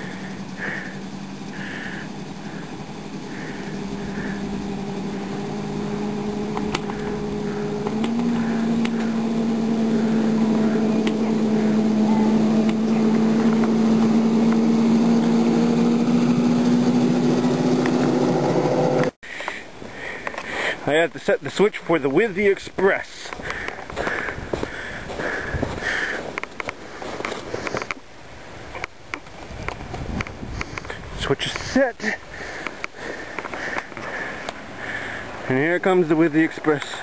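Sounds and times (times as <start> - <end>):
small train engine running: 0.0 - 19.2.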